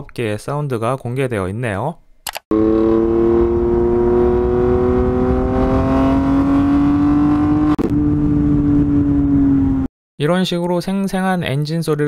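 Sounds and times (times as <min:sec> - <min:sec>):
recorded engine note rising: 0:02.5 - 0:09.9.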